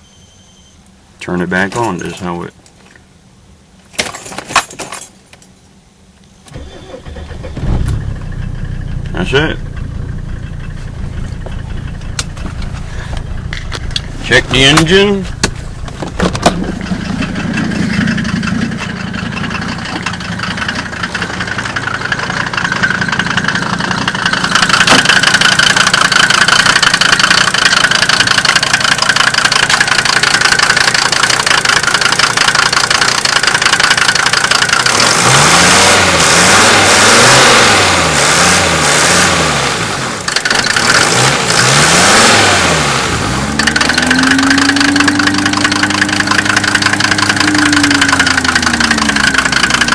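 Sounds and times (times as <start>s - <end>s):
diesel engine idling and revving: 6.5s - 49.9s.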